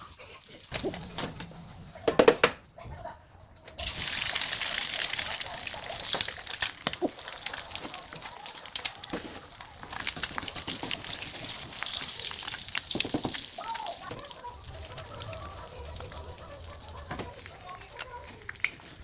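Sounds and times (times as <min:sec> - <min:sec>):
food sizzling in hot oil: 0:03.8 - 0:19.0.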